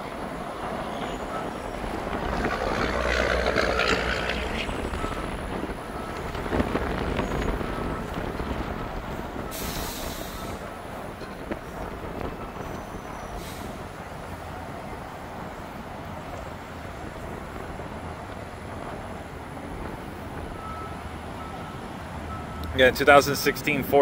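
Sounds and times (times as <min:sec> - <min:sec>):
diesel truck engine running: 0:01.3 - 0:11.1.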